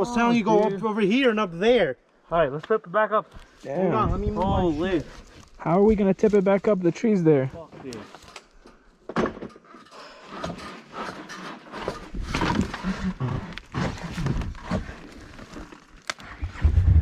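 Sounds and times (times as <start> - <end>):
knocks scrapes and rustling: 7.5 - 17.0.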